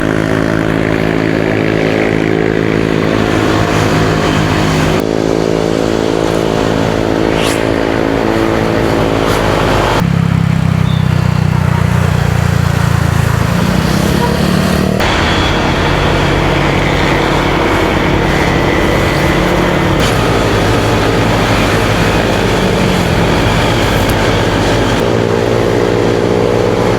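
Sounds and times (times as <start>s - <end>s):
motorcycle engine running: 0.0s - 26.9s
traffic noise: 0.0s - 26.9s
short high rising squeal: 13.8s - 25.0s
wind noise: 15.0s - 26.9s.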